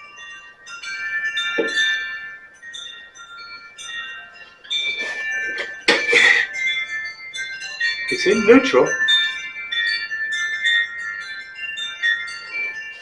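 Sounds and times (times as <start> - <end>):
high ringing chime tones: 0.0 - 13.0
clattering knocks: 1.6 - 1.9, 5.0 - 6.5.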